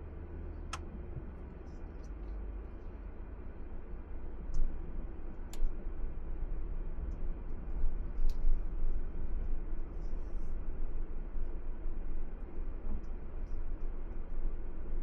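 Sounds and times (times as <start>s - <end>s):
car interior road and engine noise: 0.0s - 15.0s.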